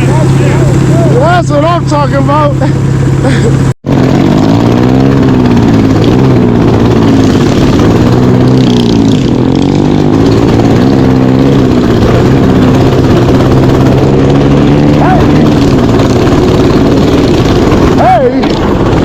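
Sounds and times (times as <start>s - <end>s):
mini bike engine revving: 0.0s - 19.0s.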